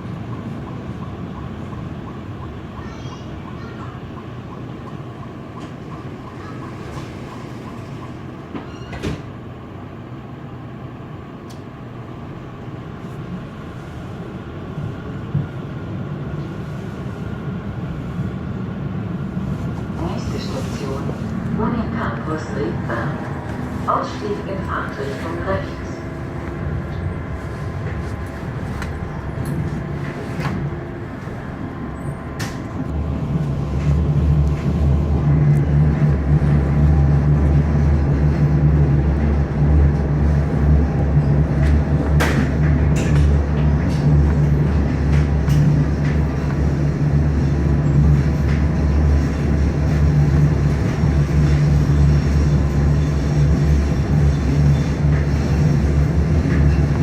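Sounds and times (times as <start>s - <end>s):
train wheels rumbling on track: 0.0s - 57.0s.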